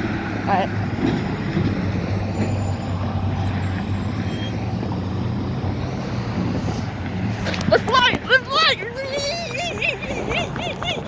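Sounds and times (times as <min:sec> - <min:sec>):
road noise: 0:00.0 - 0:11.0
vehicle engine humming: 0:00.0 - 0:11.0.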